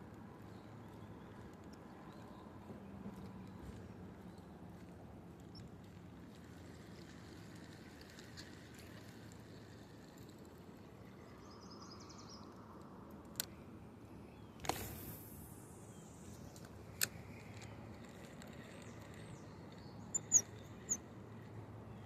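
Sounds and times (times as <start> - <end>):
bird trill: 18.6 - 21.1.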